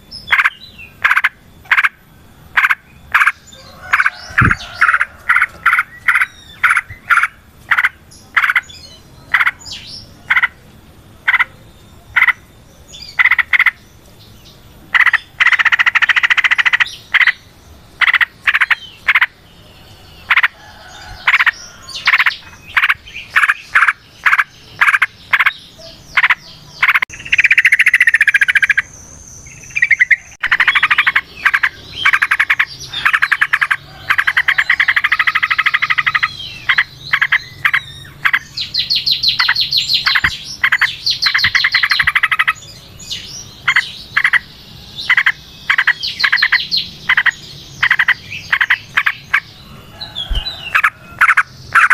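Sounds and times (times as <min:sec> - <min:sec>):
bird chirping sharply: 0:21.4 - 0:51.9.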